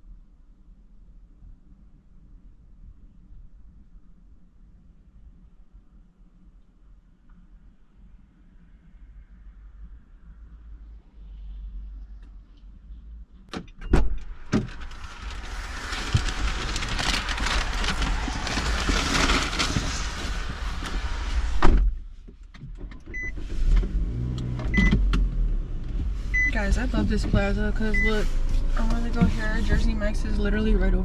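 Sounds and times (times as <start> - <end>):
thump: 21.4 - 22.0.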